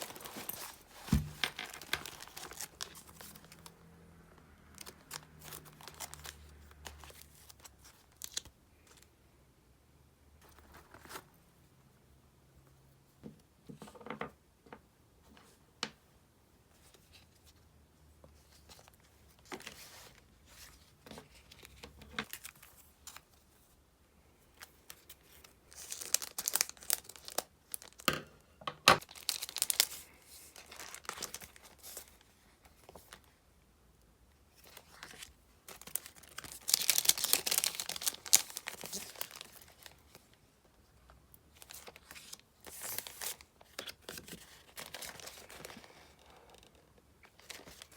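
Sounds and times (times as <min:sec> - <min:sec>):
plastic packaging crinkling: 0:00.0 - 0:03.7, 0:04.7 - 0:09.0, 0:24.7 - 0:28.1, 0:29.0 - 0:32.2, 0:34.6 - 0:40.3, 0:41.5 - 0:46.2.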